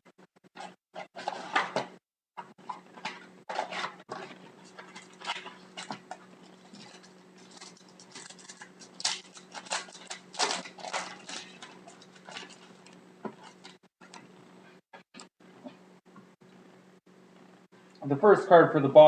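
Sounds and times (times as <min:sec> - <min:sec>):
faint electrical hum: 0:02.6 - 0:19.0
card packaging rustling: 0:03.1 - 0:13.8.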